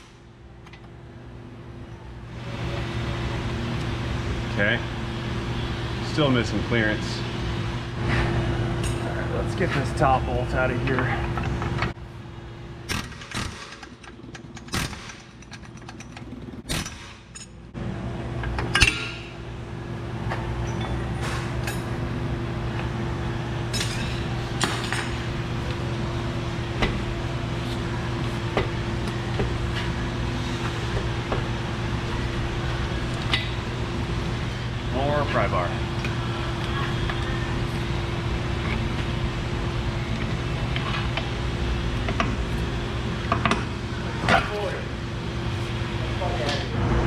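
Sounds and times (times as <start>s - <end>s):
steady machine hum: 0.0s - 47.0s
metal parts clinking and knocking: 12.9s - 17.6s.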